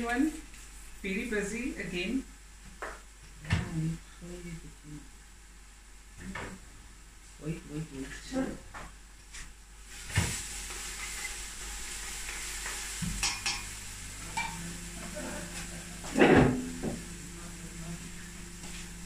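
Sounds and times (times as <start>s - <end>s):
low steady hum: 0.0s - 19.0s
onions sizzling in hot oil: 9.8s - 19.0s
utensil knocking a pot: 13.0s - 13.7s.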